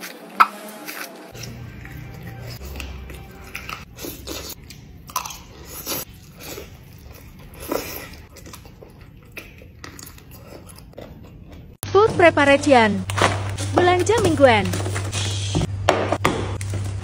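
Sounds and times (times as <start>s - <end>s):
biting and chewing chicken: 0.0s - 11.8s.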